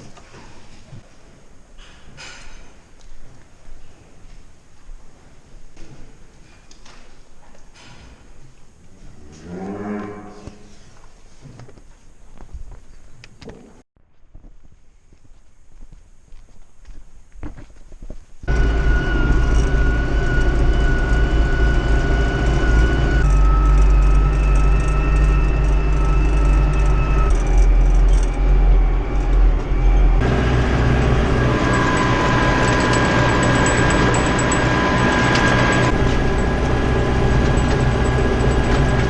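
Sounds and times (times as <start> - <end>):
high engine whine: 18.5 - 39.0
tractor engine running: 18.5 - 39.0.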